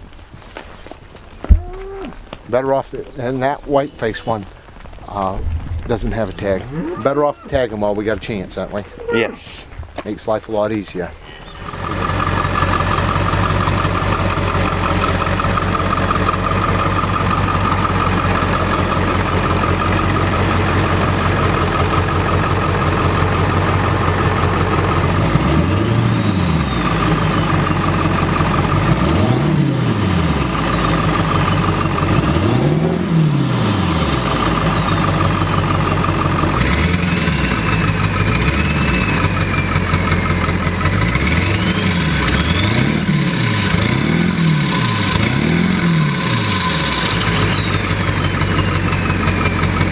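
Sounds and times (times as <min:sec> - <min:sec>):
truck engine revving: 0:05.0 - 0:09.6, 0:11.4 - 0:49.9.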